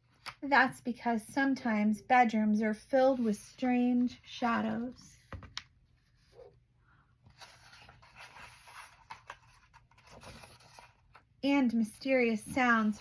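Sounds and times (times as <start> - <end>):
paper rustling and scraping: 7.3 - 11.2.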